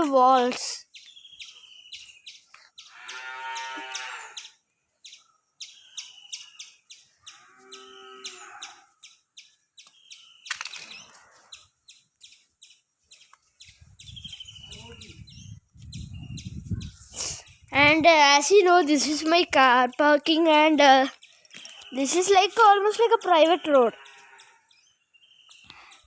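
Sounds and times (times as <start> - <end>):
small birds chirping: 0.0 - 26.0
farm animal long calls: 2.9 - 4.5.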